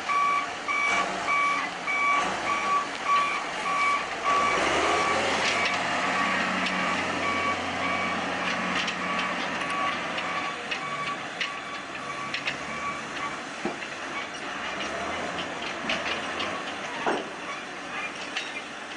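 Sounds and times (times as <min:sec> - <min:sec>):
diesel engine running: 0:00.0 - 0:18.9
reverse alarm beeping: 0:00.1 - 0:13.4
metallic clanks: 0:07.9 - 0:18.9.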